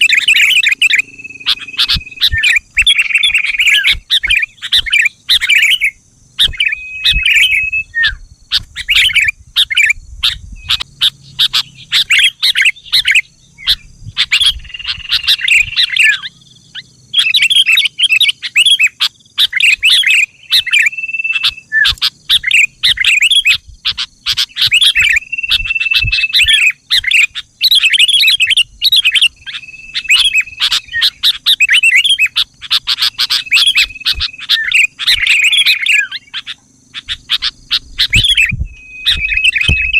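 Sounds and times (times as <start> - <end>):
bird whistled note: 0.0 - 9.3, 19.7 - 23.5, 24.3 - 36.3, 37.0 - 39.9
bulbul chattering song: 0.0 - 39.9.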